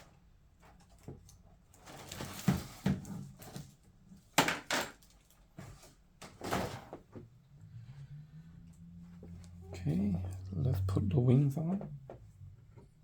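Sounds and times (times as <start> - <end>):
plastic parts clicking and knocking: 0.6 - 5.4.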